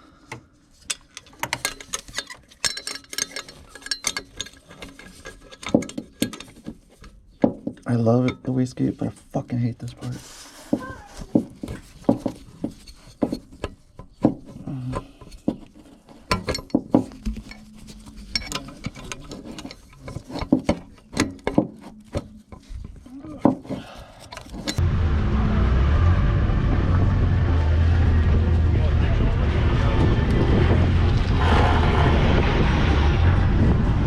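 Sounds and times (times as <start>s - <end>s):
hand tools clicking on metal: 0.8s - 6.7s
car engine rumbling: 24.6s - 34.0s.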